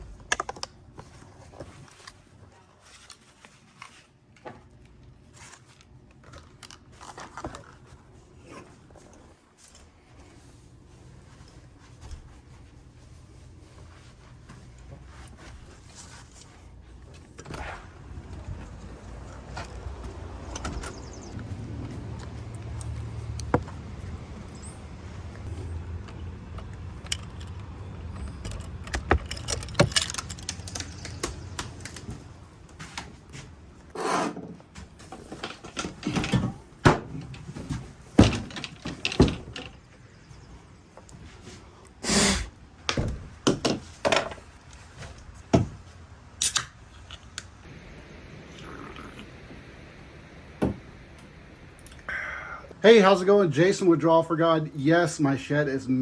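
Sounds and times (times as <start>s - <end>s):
objects being handled and set down: 27.1s - 33.5s, 34.3s - 39.9s, 42.9s - 46.0s
low steady hum: 44.2s - 56.0s.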